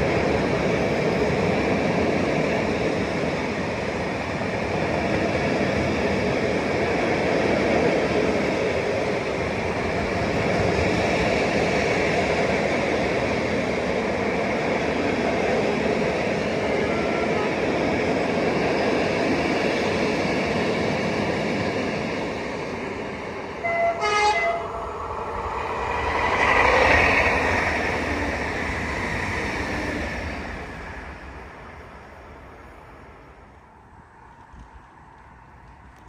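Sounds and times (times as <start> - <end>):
train rolling on rails: 0.0 - 36.0
train horn blasts: 23.6 - 24.8.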